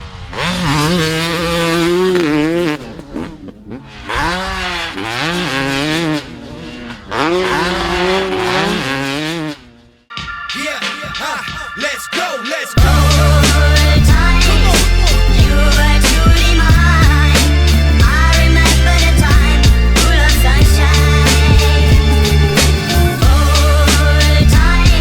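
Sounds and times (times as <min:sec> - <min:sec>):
motocross bike engines revving: 0:00.0 - 0:10.0, 0:12.8 - 0:25.0
steady high tones: 0:10.1 - 0:16.6.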